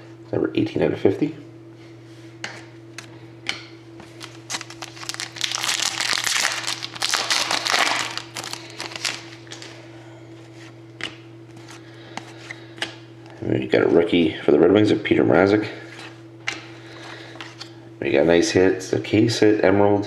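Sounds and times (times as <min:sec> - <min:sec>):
low electrical hum: 0:00.0 - 0:20.0
cards and wrapper crinkling: 0:04.0 - 0:09.8.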